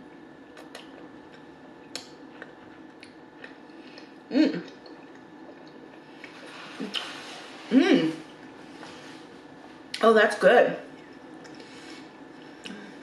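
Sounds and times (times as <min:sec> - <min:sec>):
person chewing wetly: 0:00.1 - 0:07.1, 0:10.9 - 0:12.9.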